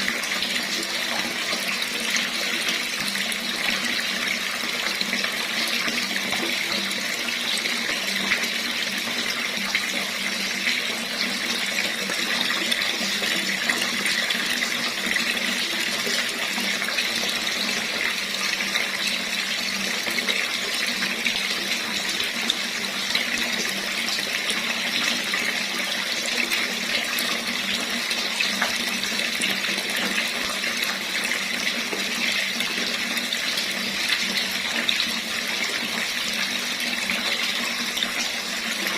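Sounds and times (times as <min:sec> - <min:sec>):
water running from a tap: 0:00.0 - 0:38.9.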